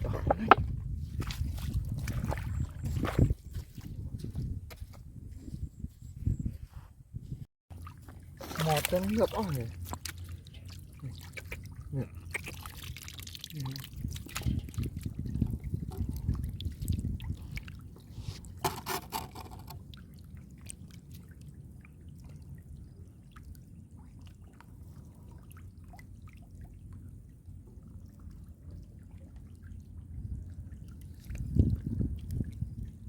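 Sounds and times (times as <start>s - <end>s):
small splashes and clicks: 0.0s - 5.0s, 7.7s - 22.6s, 30.7s - 33.0s
muddy water sloshing and trickling: 0.0s - 6.6s, 7.2s - 33.0s.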